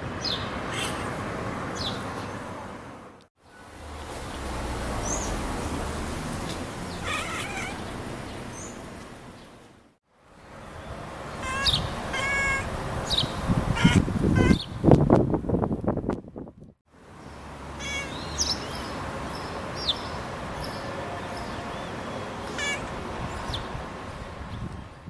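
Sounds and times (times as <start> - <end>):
cat chirping: 0.7 - 1.2, 6.9 - 8.0, 11.4 - 14.7, 17.8 - 18.7, 22.4 - 23.0.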